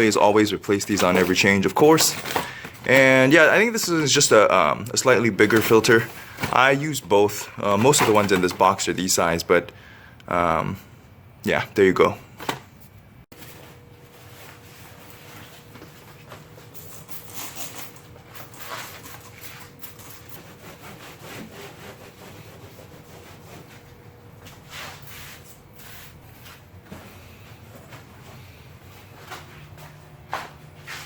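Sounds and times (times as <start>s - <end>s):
rubbing and scuffing: 12.8s - 16.8s, 18.4s - 31.0s.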